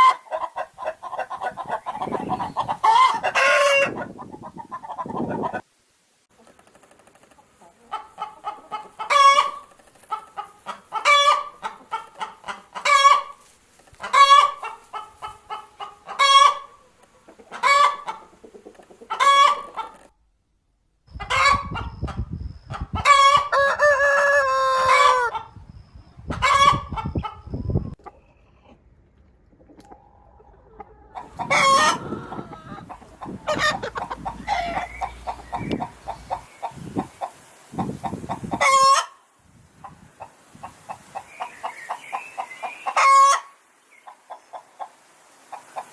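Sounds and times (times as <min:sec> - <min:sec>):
hens cackling: 0:00.0 - 0:05.7, 0:07.3 - 0:20.1, 0:29.6 - 0:39.2, 0:39.8 - 0:45.9
rooster crowing: 0:01.6 - 0:04.1, 0:23.4 - 0:25.3, 0:31.2 - 0:35.7.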